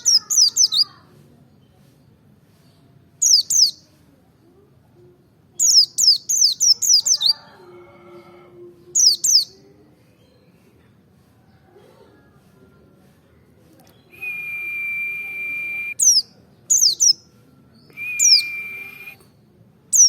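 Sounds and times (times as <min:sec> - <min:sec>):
bird singing rapid high chirps: 0:05.6 - 0:07.3, 0:14.3 - 0:17.2, 0:18.0 - 0:19.2.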